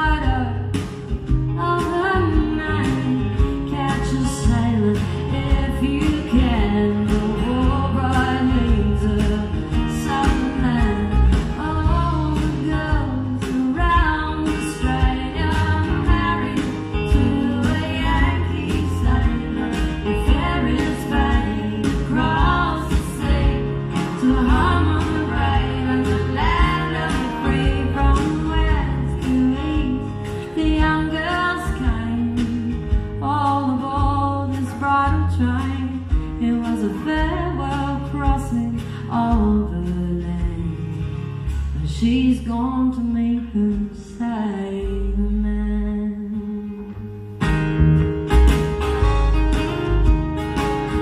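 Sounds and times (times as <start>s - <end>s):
women singing: 0.0s - 0.8s, 1.4s - 41.0s, 41.8s - 47.0s
folk band playing: 0.0s - 42.5s, 46.9s - 51.0s
bass: 0.0s - 51.0s.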